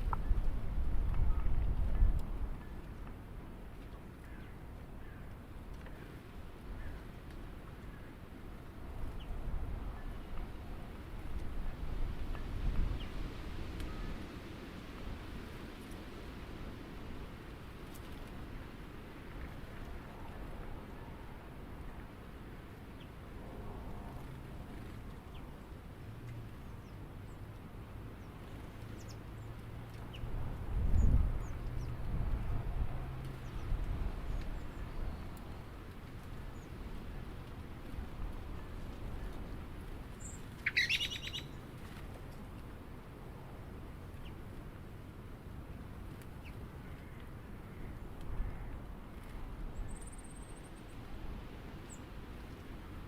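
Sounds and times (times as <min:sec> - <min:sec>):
faint bird chirps: 0:40.2 - 0:41.5.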